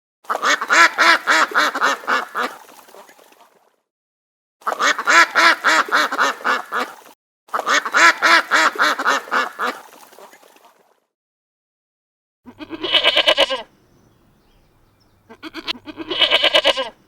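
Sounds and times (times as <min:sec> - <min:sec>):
duck quacking: 0:00.3 - 0:02.7, 0:04.7 - 0:09.9, 0:12.5 - 0:13.7, 0:15.2 - 0:17.0.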